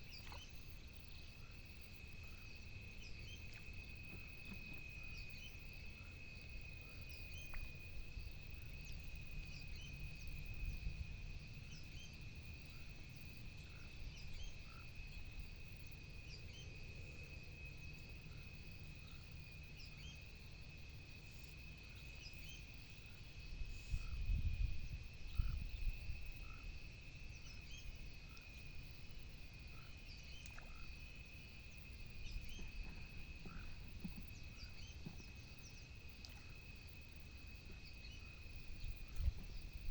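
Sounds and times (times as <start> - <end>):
insects droning: 0.0 - 39.9
frog calls: 25.3 - 26.8, 32.0 - 39.8.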